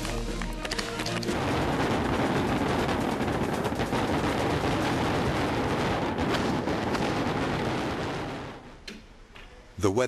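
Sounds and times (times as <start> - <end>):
firework shell bursts: 0.0 - 7.6
fireworks barrage: 0.0 - 8.8
firework launch reports: 1.3 - 8.6.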